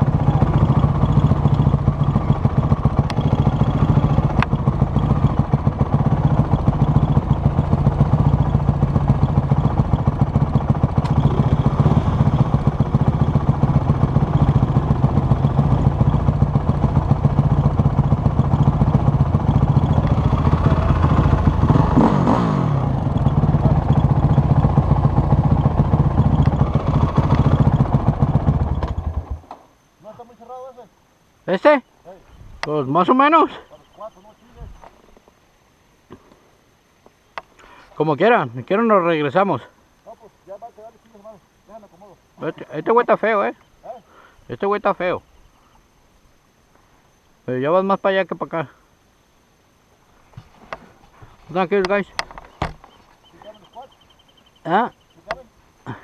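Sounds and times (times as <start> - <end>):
off-road vehicle engine running: 0.0 - 30.2, 50.6 - 56.0.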